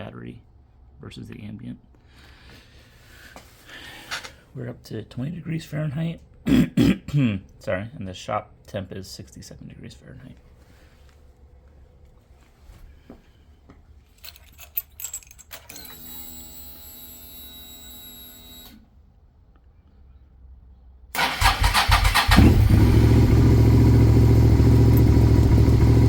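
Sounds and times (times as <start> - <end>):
fuel pump whine: 21.2 - 26.0
motorcycle engine idling: 21.2 - 26.0
starter motor cranking: 21.2 - 26.0.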